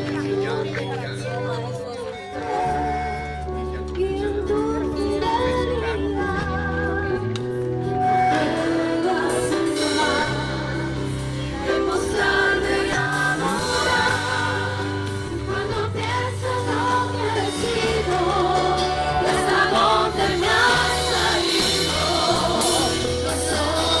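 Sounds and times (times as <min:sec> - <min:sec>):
instrumental accompaniment with bass: 0:00.0 - 0:24.0
group singing worship song: 0:05.2 - 0:24.0.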